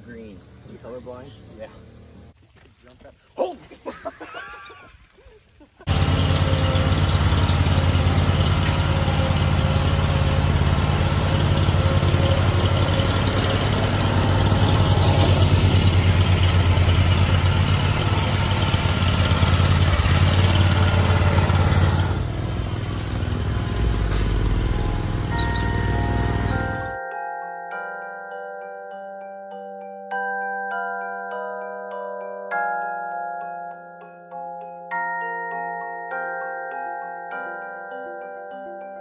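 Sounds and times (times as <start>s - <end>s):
lawn mower engine running: 5.8s - 27.0s.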